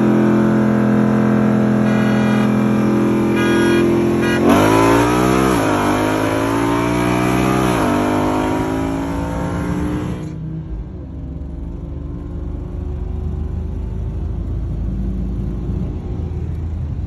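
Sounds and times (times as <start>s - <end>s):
car engine revving through gears: 0.0s - 10.4s.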